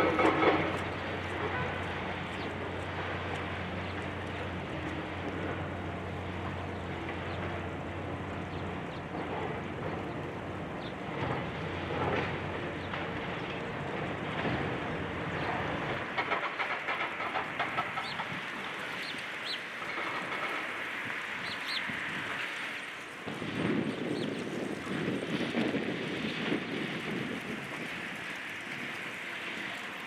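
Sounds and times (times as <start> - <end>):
rapid rattling clatter: 0.0 - 7.8, 11.1 - 19.1
heavy engine hum: 0.0 - 30.0.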